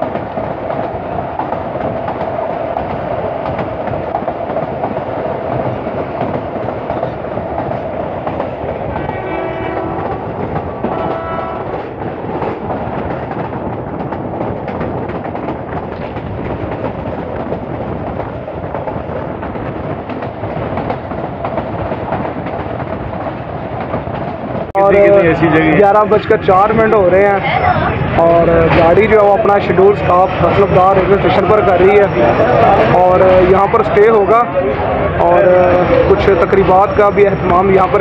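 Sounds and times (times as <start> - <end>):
train wheel and rail rumble: 0.0 - 38.0
locomotive horn blasts: 9.0 - 10.2, 10.8 - 11.8.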